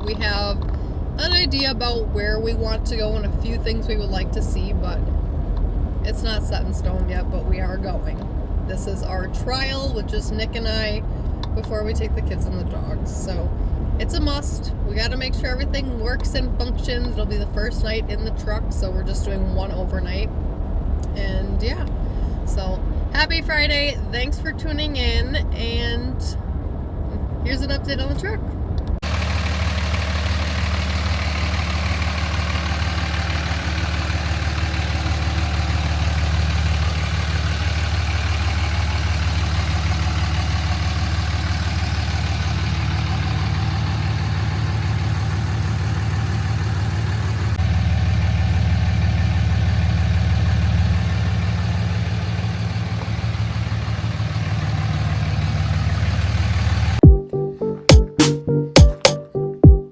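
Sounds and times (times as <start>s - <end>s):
truck engine humming: 0.0s - 59.9s
beat-driven music: 57.0s - 59.9s.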